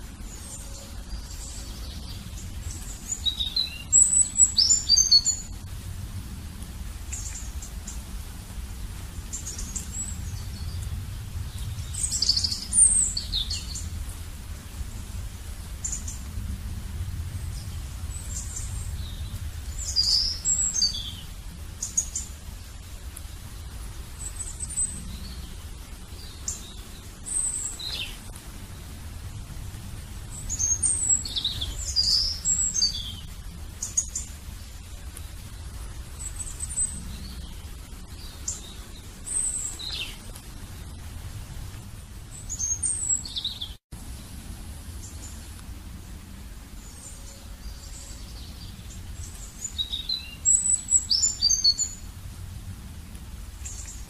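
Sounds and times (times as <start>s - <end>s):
low steady rumble: 0.0s - 54.0s
small birds chirping: 0.0s - 54.0s.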